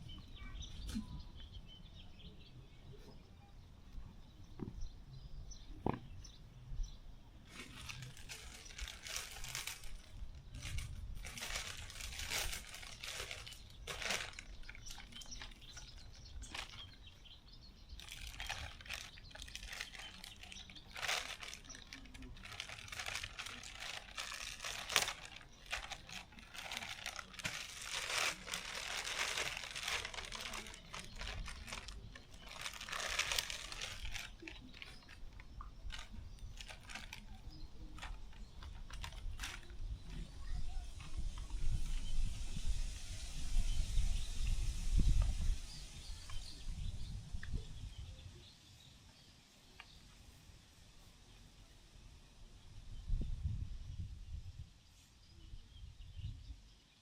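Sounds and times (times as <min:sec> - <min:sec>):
material crinkling and rustling: 0:07.4 - 0:17.2, 0:18.0 - 0:40.2.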